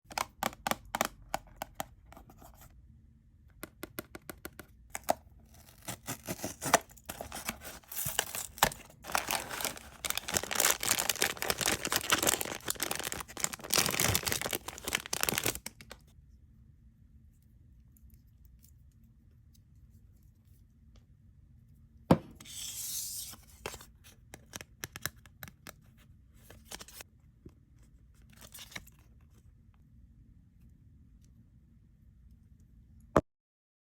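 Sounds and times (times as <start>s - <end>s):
packaging crinkling and tearing: 5.0s - 16.1s.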